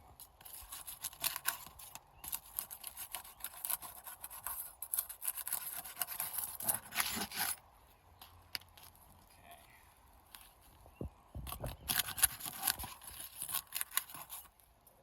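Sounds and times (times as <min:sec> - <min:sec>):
roof shingles scraping and crackling: 0:00.2 - 0:07.6, 0:11.5 - 0:14.6.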